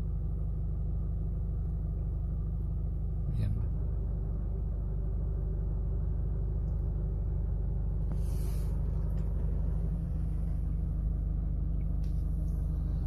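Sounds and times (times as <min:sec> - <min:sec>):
low rumble: 0:00.0 - 0:13.0
brief hiss: 0:08.1 - 0:08.8.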